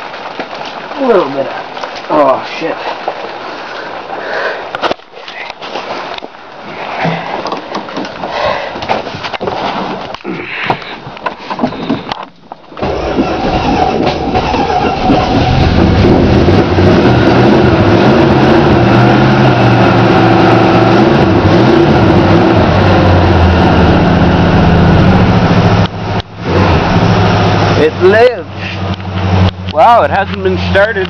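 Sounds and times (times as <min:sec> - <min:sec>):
car engine starting and running: 0:11.8 - 0:31.0.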